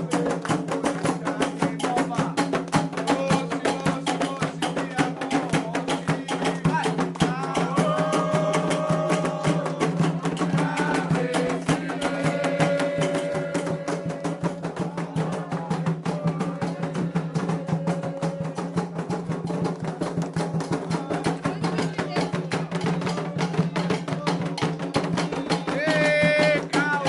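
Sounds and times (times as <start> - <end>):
fast ritual drumming: 0.0 - 27.0
voices chanting long notes: 7.3 - 18.7.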